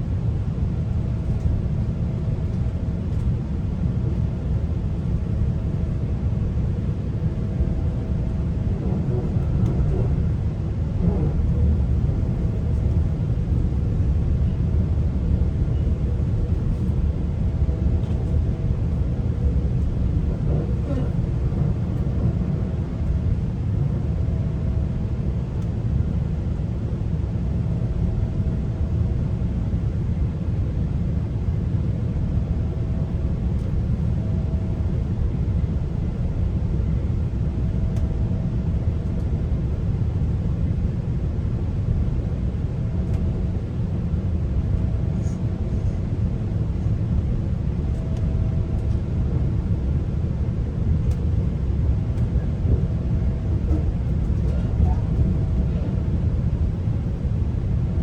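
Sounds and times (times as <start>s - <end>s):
train coach rumbling on track: 0.0s - 58.0s.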